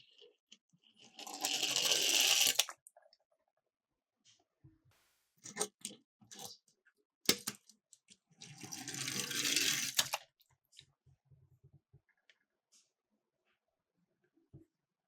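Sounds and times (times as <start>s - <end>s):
toy cars rattling roll: 1.1s - 2.7s, 8.8s - 10.1s
toy cars clicking and knocking: 1.1s - 2.8s.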